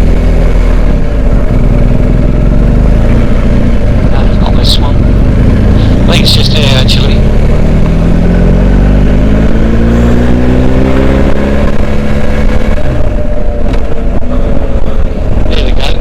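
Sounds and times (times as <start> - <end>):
motorcycle engine revving: 0.0 - 16.0
wind rumble on microphone: 6.8 - 16.0.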